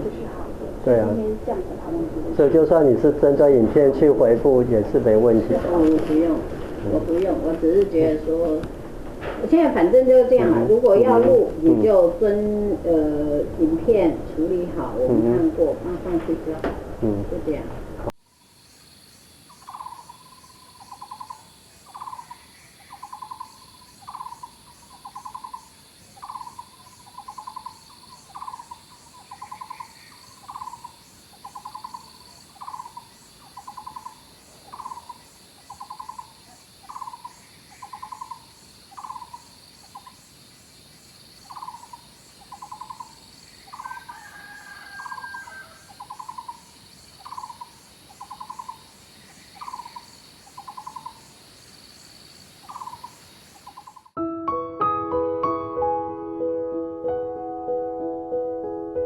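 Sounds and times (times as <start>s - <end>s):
high-pitched insect drone: 18.3s - 40.3s, 41.4s - 51.3s, 52.6s - 54.1s
rapid rattling animal call: 19.5s - 40.2s, 41.4s - 51.4s, 52.6s - 54.2s.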